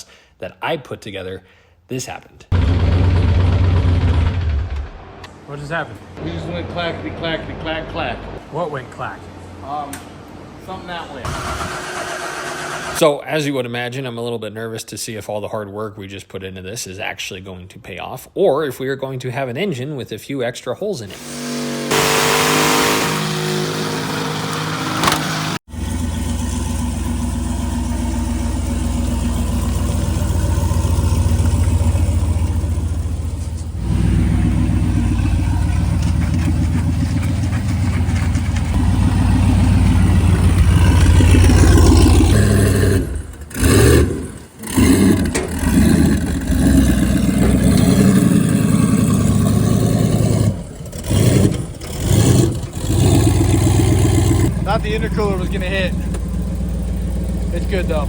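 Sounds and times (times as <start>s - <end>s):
engine revving on a dyno: 21.1s - 26.3s, 38.7s - 54.8s.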